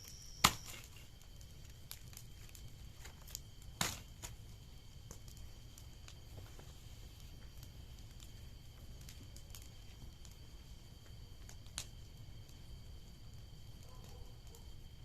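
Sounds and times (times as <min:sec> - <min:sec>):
faint steady high tone: 0:00.0 - 0:01.1
bonfire crackling and snapping: 0:00.0 - 0:15.0.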